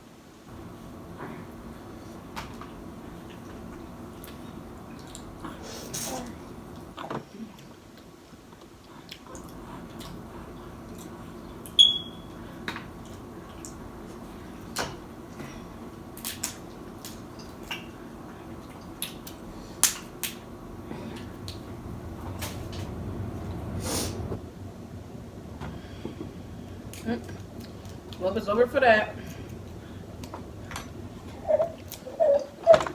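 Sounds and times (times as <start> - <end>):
chewing: 1.0 - 7.8, 8.6 - 23.6
crab shell cracking: 19.0 - 20.4.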